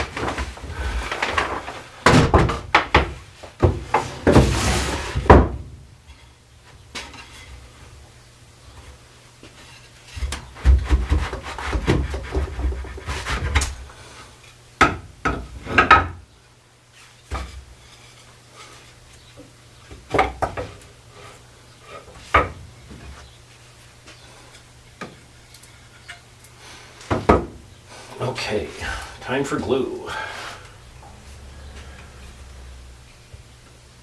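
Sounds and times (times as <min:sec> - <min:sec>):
wooden parts rattling and scraping: 0:00.0 - 0:06.3, 0:06.9 - 0:07.8, 0:08.7 - 0:13.9, 0:17.0 - 0:26.3
sharp wooden knocks: 0:27.1 - 0:27.6.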